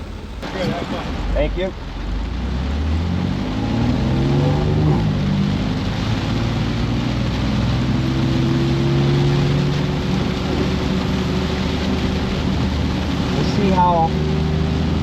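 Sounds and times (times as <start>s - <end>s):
car engine accelerating: 0.0s - 15.0s
heavy rain and tyre spray: 0.0s - 15.0s.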